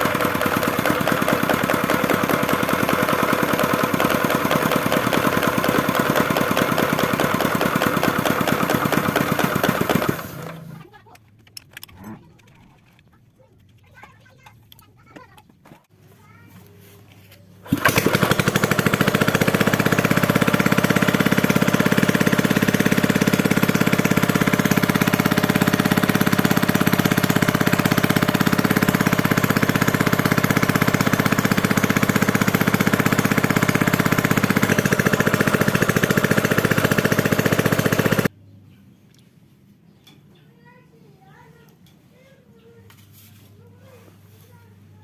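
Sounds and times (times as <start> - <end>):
small engine running fast: 0.0 - 10.8, 17.6 - 38.3.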